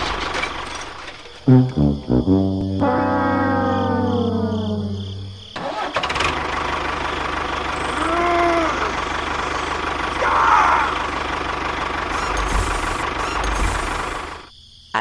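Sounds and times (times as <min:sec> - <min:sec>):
rising and falling tone: 0:01.5 - 0:05.4
small motor running: 0:12.0 - 0:14.5.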